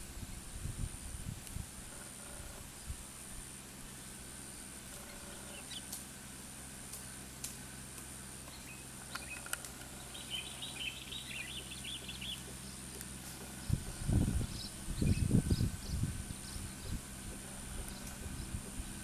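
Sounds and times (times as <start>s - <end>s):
steady low hum: 0.0s - 19.0s
small bird chirping: 3.8s - 6.4s, 8.4s - 19.0s
faint clicks: 6.9s - 10.0s.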